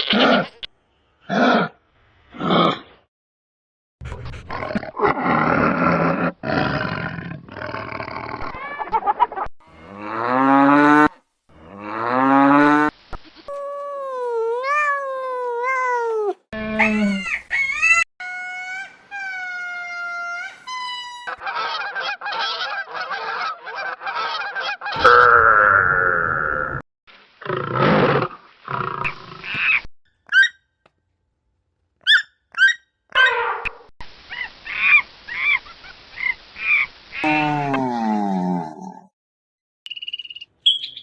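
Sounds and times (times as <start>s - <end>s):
animal and bird calls: 16.8s - 18.0s, 39.9s - 41.0s.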